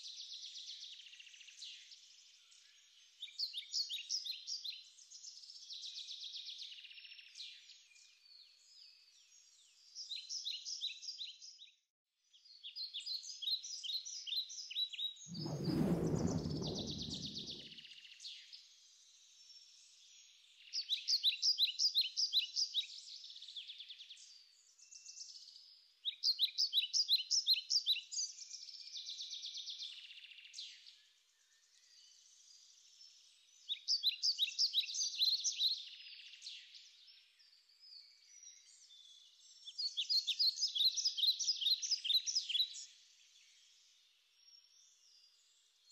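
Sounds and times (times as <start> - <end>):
deep rumbling noise: 15.3 - 17.7.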